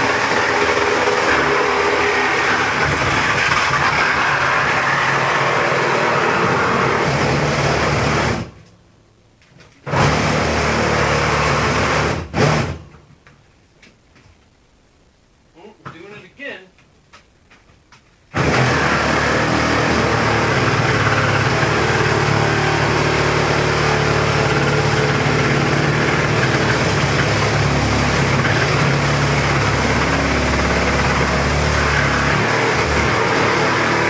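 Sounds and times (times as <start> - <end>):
power saw cutting metal: 0.0 - 8.5, 18.4 - 34.0.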